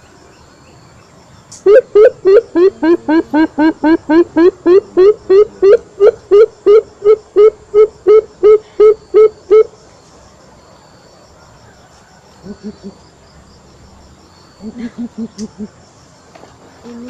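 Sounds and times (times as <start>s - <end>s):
crickets chirring: 0.0s - 17.0s
coucal hooting: 1.6s - 9.7s.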